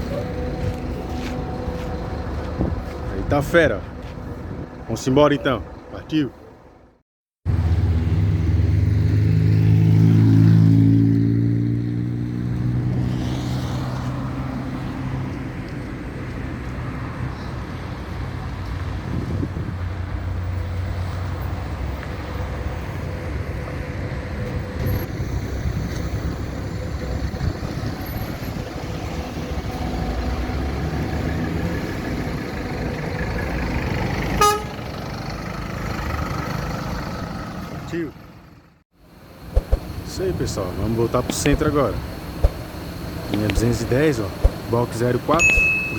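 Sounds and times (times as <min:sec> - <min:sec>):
bus engine pulling away: 0:00.0 - 0:45.9
short horn toot: 0:34.4 - 0:34.8.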